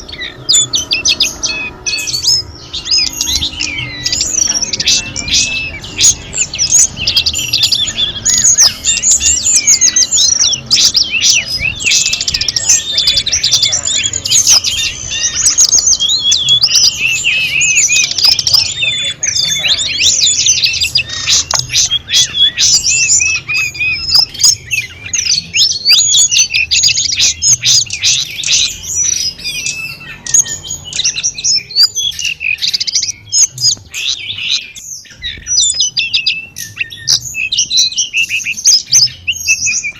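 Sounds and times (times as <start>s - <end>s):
songbird twittering and chirping: 0.0s - 39.9s.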